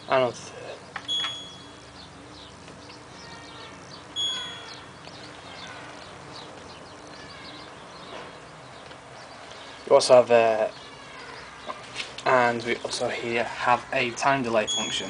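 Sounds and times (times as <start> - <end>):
faint bird chirping: 0.0 - 15.0
short electronic beeps: 1.1 - 1.8, 4.2 - 4.8, 14.7 - 15.0.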